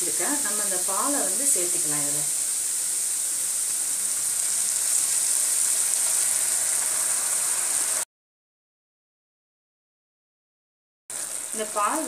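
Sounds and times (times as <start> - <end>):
carrots sizzling in a pan: 0.0 - 8.1, 11.1 - 12.0.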